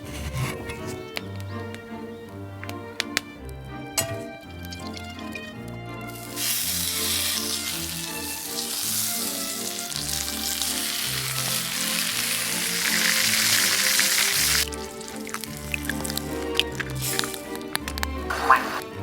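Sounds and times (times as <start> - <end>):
background music: 0.0 - 19.0
food sizzling in a frying pan: 6.1 - 17.6.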